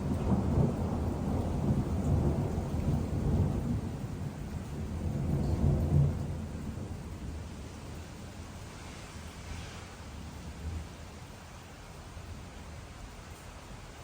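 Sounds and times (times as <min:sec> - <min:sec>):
rolling thunder: 0:00.0 - 0:08.0.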